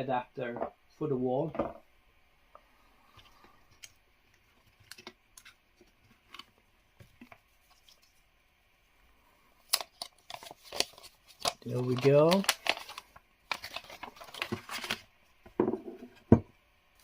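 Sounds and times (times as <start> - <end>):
plastic clicks and crinkles: 4.8 - 6.5, 9.6 - 15.0
hands handling packaging: 9.6 - 15.1.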